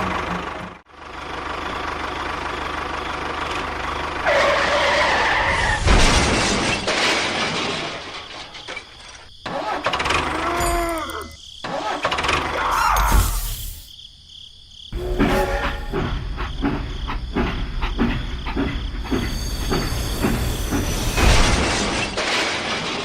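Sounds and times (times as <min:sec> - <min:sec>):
small engines running: 0:00.0 - 0:05.4, 0:15.0 - 0:22.3.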